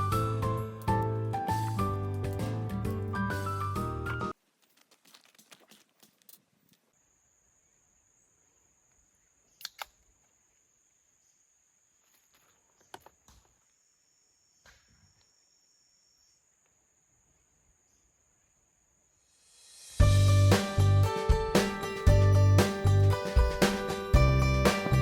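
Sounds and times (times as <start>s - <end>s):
lower insect trill: 6.8s - 20.0s
high-pitched insect trill: 13.5s - 20.0s.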